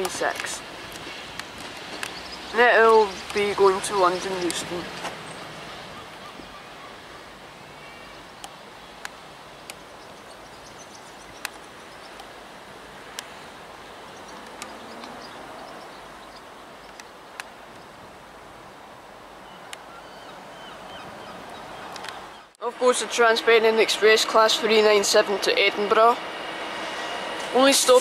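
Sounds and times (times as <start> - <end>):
sharp clicks: 14.2 - 15.3, 21.9 - 22.2
railway station background noise: 24.2 - 28.0.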